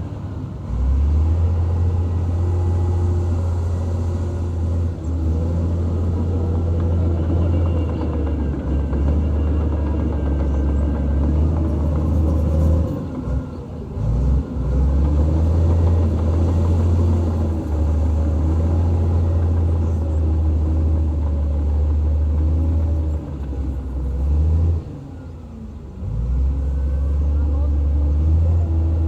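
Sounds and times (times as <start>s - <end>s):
diesel engine rumbling: 0.0s - 29.0s.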